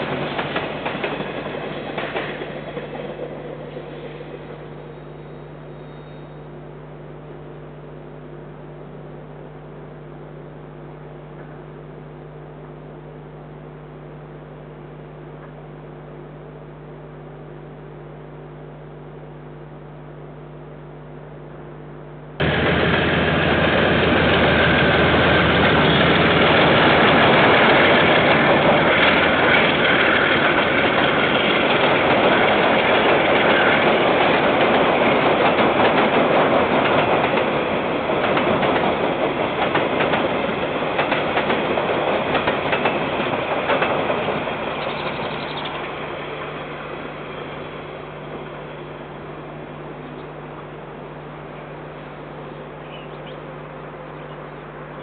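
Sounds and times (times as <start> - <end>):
freight train wheels clacking: 0.0 - 4.4, 22.4 - 46.6
low electrical hum: 4.2 - 23.4, 44.8 - 55.0.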